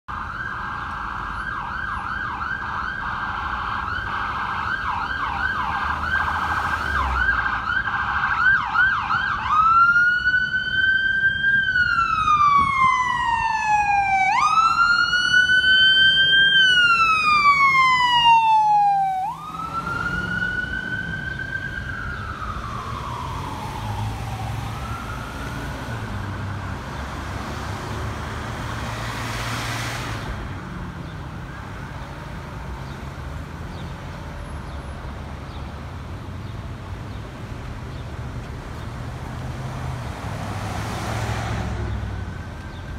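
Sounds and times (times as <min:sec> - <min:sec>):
emergency vehicle siren: 0:00.1 - 0:36.2, 0:37.2 - 0:42.9
low traffic rumble: 0:00.1 - 0:42.9.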